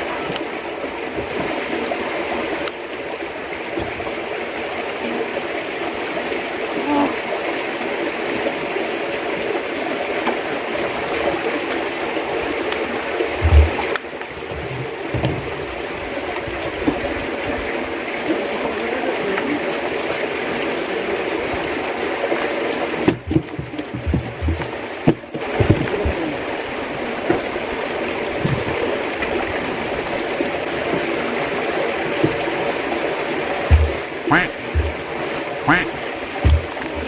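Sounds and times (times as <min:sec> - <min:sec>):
running water: 0:00.0 - 0:37.0
low thumps: 0:13.4 - 0:15.7, 0:23.1 - 0:26.3, 0:33.6 - 0:37.0.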